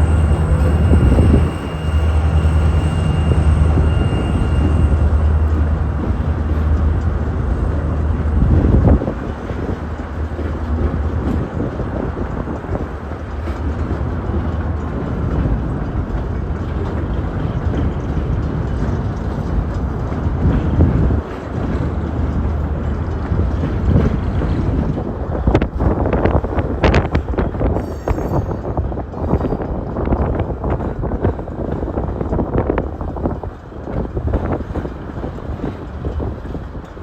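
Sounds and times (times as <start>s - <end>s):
freight train rolling on track: 0.0s - 37.0s.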